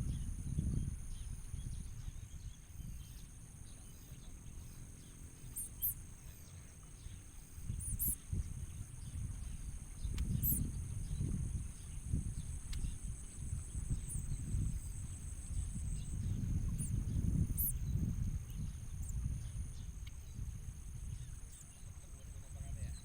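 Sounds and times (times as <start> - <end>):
low rumble with thumps: 0.0 - 4.3, 7.6 - 21.4
high bird chirps: 7.8 - 8.2, 16.8 - 17.8.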